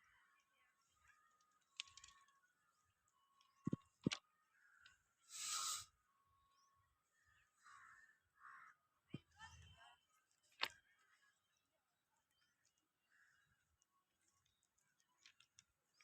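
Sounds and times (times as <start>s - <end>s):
short hiss: 5.3s - 5.9s.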